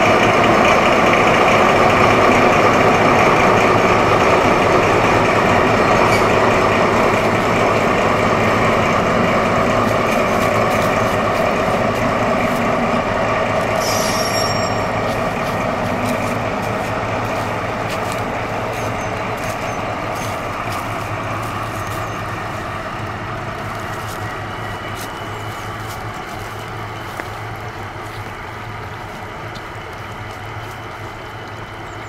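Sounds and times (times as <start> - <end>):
diesel locomotive engine drone: 0.0 - 32.0
wagon rumble: 0.0 - 32.0
high squeal: 6.0 - 6.5, 13.6 - 15.7.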